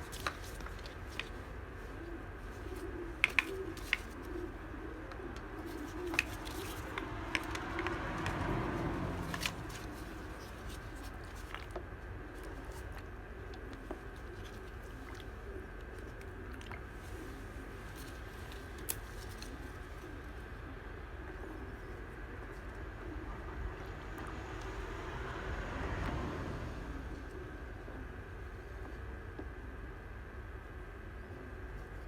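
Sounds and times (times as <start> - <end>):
rustling: 0.0 - 16.2
bird cooing softly: 0.0 - 32.0.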